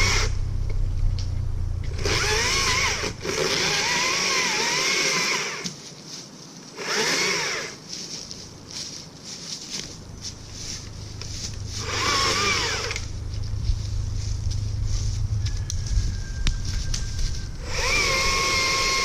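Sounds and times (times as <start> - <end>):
chainsaw cutting wood: 0.0 - 0.4, 1.9 - 5.8, 6.7 - 7.8, 11.7 - 13.1, 17.6 - 19.0.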